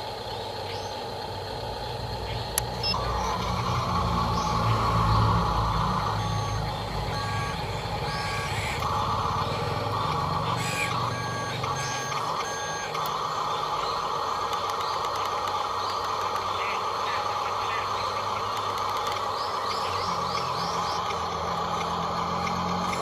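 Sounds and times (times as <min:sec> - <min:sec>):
electric motor whirr: 0:00.0 - 0:23.0
electronic reversing beeper: 0:02.8 - 0:14.0.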